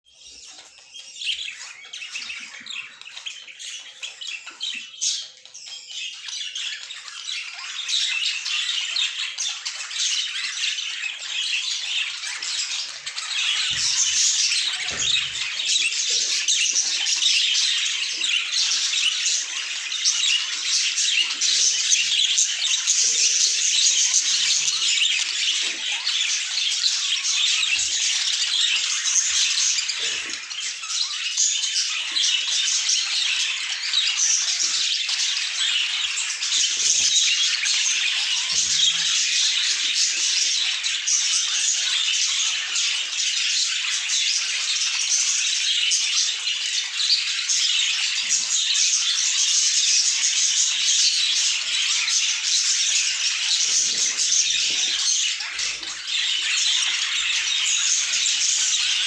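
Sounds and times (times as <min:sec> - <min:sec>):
budgerigars chattering and warbling: 0:00.1 - 0:59.0.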